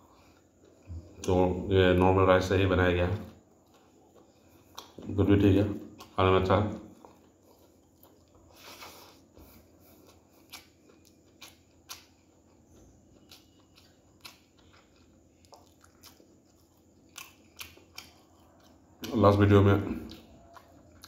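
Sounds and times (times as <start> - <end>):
faint chewing: 0.0 - 1.4, 2.9 - 21.0.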